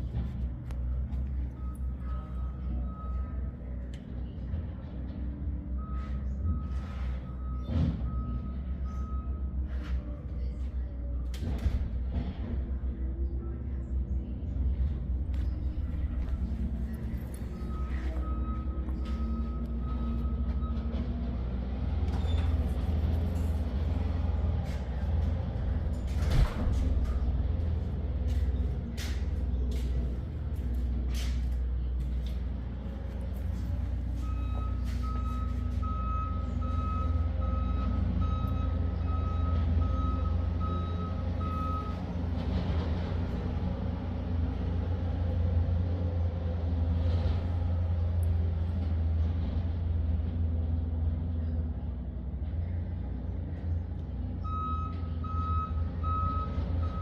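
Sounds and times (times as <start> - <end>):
engine idling: 0.0 - 57.0
backup alarm beeping: 0.8 - 3.8, 15.6 - 21.1, 34.0 - 42.1, 54.4 - 57.0.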